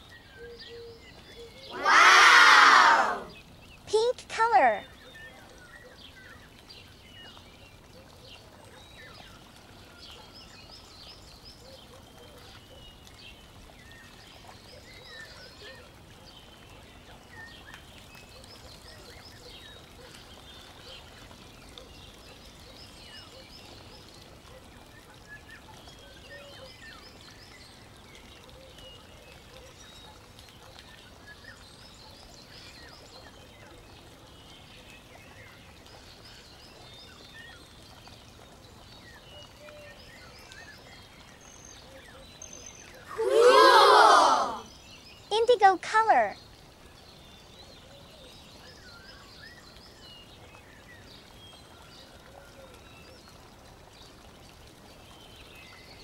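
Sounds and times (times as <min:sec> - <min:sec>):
low steady hiss: 0:12.9 - 0:56.0.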